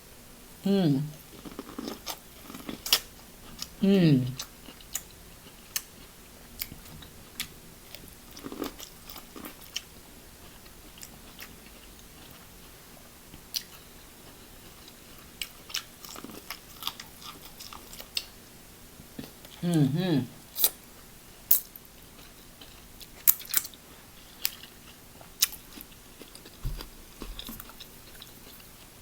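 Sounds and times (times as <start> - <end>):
person chewing corn: 1.1 - 18.4, 20.5 - 20.9, 21.5 - 29.0.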